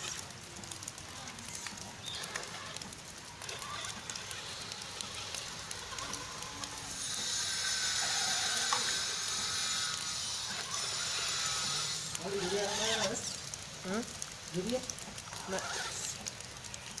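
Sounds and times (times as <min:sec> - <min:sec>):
rain pattering: 0:00.0 - 0:17.0.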